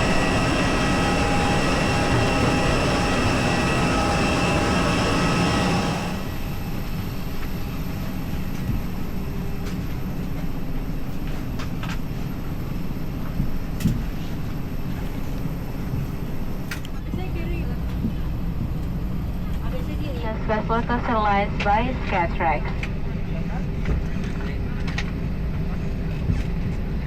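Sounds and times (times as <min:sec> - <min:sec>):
cabin hum: 0:00.0 - 0:07.0
aircraft engine roar with whine: 0:00.0 - 0:27.0.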